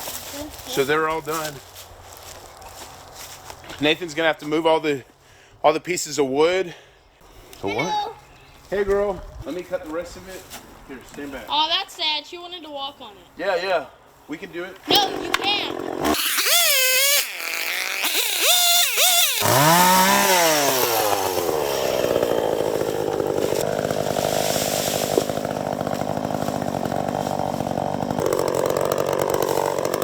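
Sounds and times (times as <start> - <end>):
chainsaw revving and cutting: 14.9 - 30.0.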